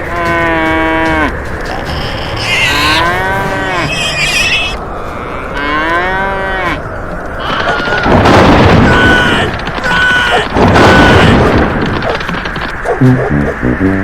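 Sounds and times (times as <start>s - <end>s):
cow mooing: 0.1s - 6.8s.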